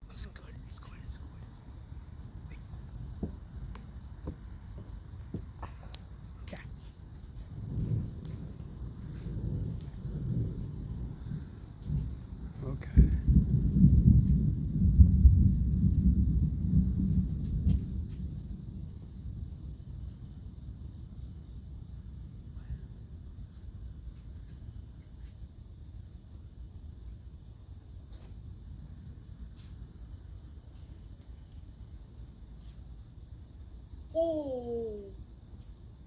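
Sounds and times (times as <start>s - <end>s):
crickets chirping: 0.0s - 36.0s
thunder rumble: 6.6s - 24.0s.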